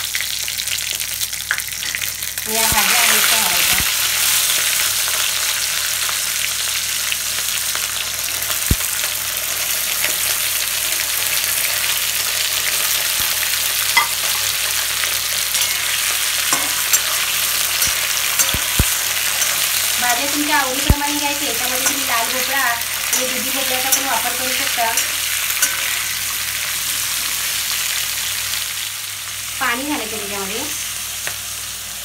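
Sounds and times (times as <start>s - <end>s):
vegetables sizzling in hot oil: 0.0s - 32.0s
spatula tapping a pan: 16.5s - 19.8s, 20.8s - 22.4s, 23.1s - 25.9s.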